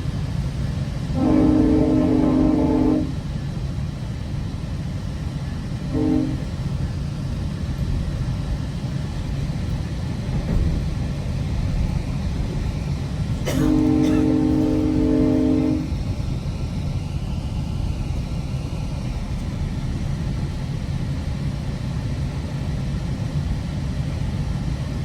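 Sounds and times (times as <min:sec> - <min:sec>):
wheels rumbling on track: 0:00.0 - 0:24.9
train horn: 0:01.1 - 0:03.3, 0:05.8 - 0:06.8, 0:13.4 - 0:16.1.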